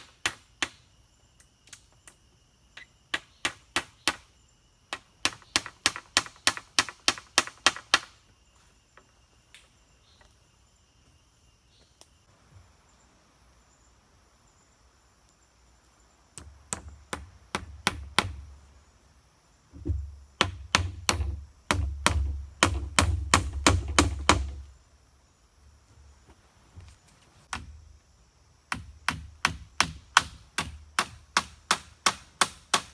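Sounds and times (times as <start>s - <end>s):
wood chopped with a blade: 5.0s - 8.2s, 16.4s - 18.5s, 19.8s - 24.7s, 27.5s - 27.9s, 28.7s - 32.9s.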